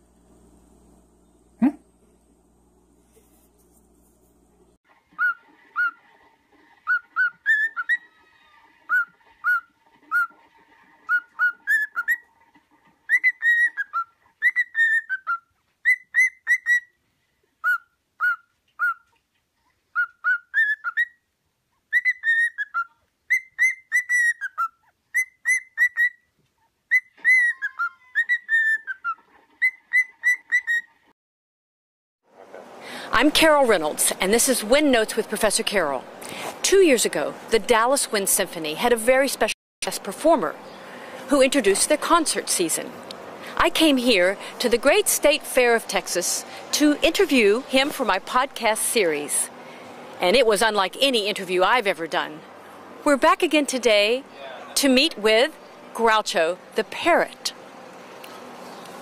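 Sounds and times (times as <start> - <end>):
parrot whistling: 5.2 - 6.0, 6.8 - 10.4, 11.0 - 12.3, 13.1 - 17.0, 17.6 - 19.1, 19.9 - 21.2, 21.9 - 26.3, 26.9 - 30.9.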